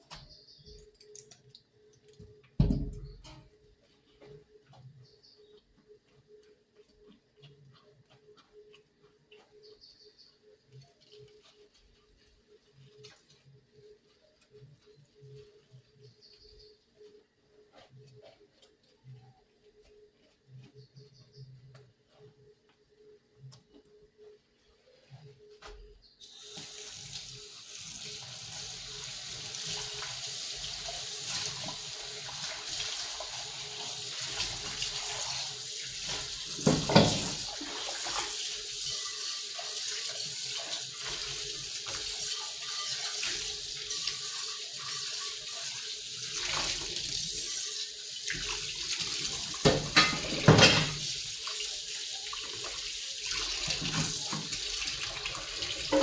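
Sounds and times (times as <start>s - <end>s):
tap running into sink: 36.4s - 38.4s, 48.3s - 51.2s, 53.6s - 55.0s.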